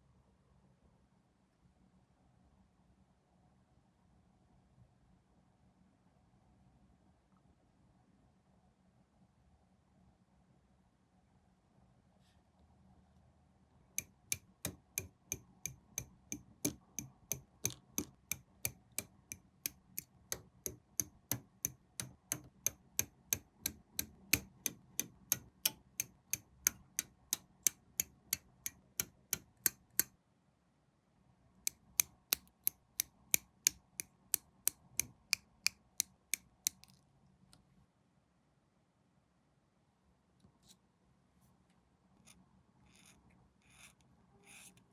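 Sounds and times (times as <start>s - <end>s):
sharp clicks: 14.0s - 30.1s.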